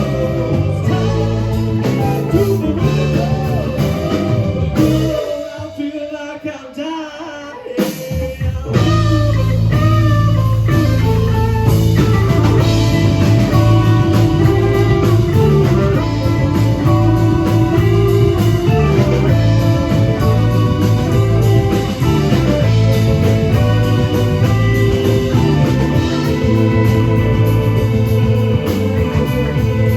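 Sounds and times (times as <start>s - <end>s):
bass guitar: 0.0s - 6.0s, 7.8s - 29.9s
person singing: 0.0s - 11.2s
drums: 0.0s - 29.9s
electric guitar: 0.0s - 29.9s.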